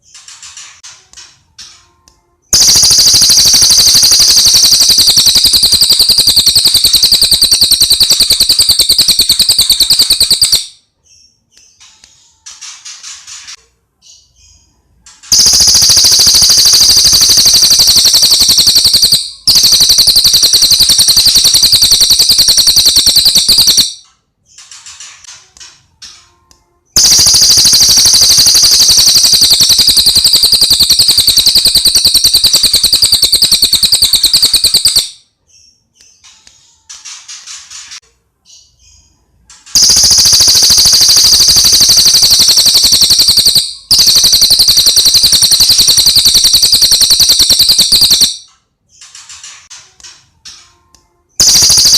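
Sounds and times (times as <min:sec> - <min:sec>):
bird rattling trills: 0:15.3 - 0:23.8, 0:27.0 - 0:35.0.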